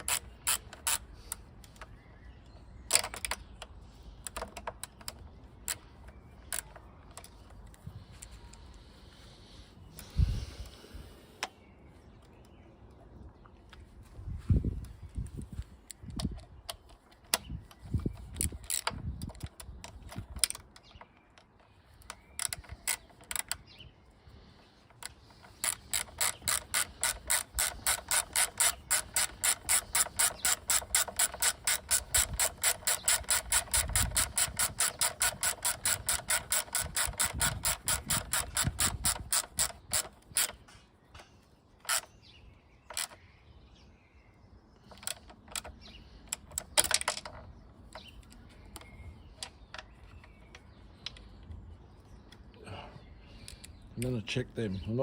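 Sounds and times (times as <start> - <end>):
hand ratchet clicking: 0.0 - 1.9, 16.1 - 23.6, 24.9 - 40.7, 41.8 - 42.1, 42.9 - 43.2, 44.8 - 49.6
tool clicks and knocks: 24.9 - 42.1, 44.8 - 51.2.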